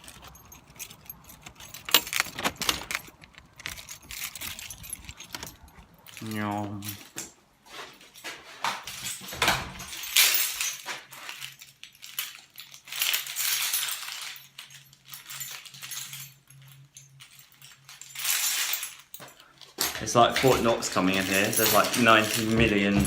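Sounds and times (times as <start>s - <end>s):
keys jangling: 0.0s - 7.3s, 8.1s - 23.0s
locks clicking and rattling: 0.0s - 7.4s, 8.1s - 23.0s.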